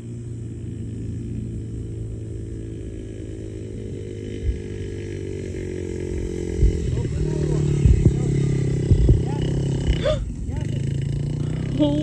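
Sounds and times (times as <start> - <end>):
dirt bike engine revving: 0.0 - 12.0
thumps on microphone: 7.8 - 9.4.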